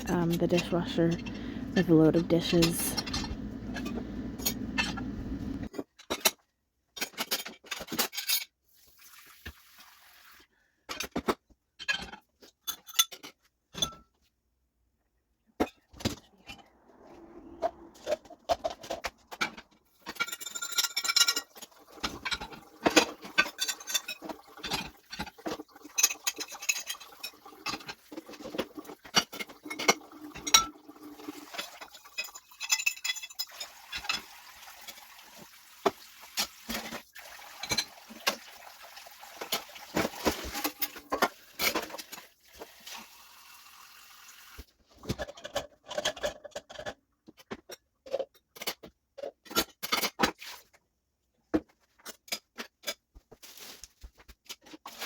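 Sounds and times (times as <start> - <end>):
dishes and cutlery clinking: 0.0 - 6.4, 18.0 - 30.8, 31.5 - 35.0.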